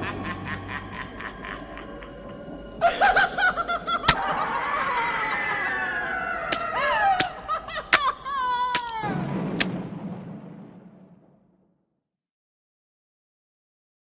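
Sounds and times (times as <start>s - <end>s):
low rumble: 0.0s - 7.0s, 9.0s - 11.8s
sharp cracks: 6.5s - 9.9s.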